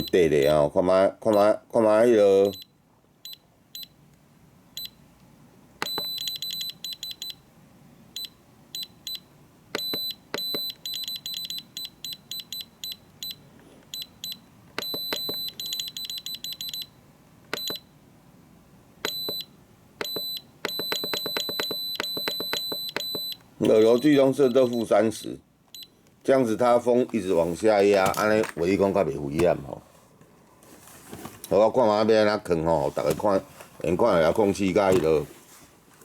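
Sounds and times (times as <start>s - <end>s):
transmitter short high beeps: 14.0s - 16.9s.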